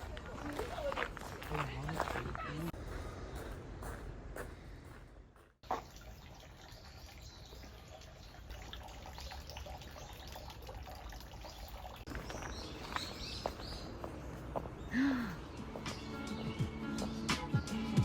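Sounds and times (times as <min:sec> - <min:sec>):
trickle of running water: 0:05.6 - 0:12.7.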